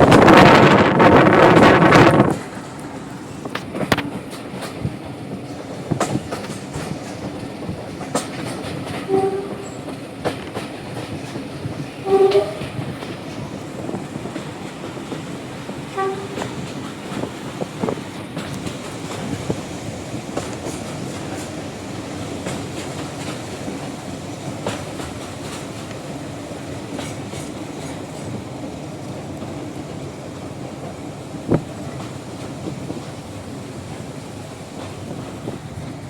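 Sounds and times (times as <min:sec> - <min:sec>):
diesel train running: 0:00.0 - 0:36.0
train wheels clicking over rail joints: 0:00.0 - 0:36.0
train horn toots: 0:09.0 - 0:09.9, 0:12.0 - 0:12.8, 0:15.9 - 0:16.6.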